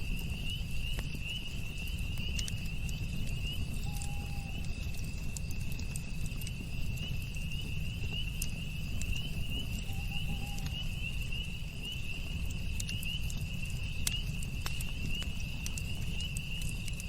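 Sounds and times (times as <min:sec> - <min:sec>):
campfire crackles: 0:00.0 - 0:17.0
crickets chirping: 0:00.0 - 0:17.0.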